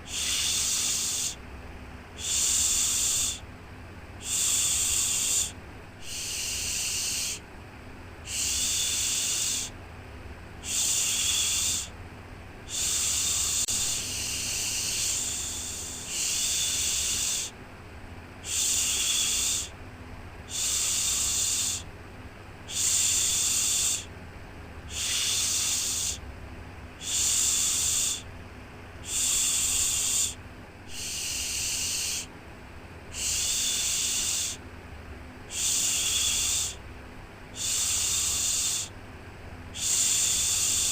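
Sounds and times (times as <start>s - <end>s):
faint low hum: 0.0s - 40.9s.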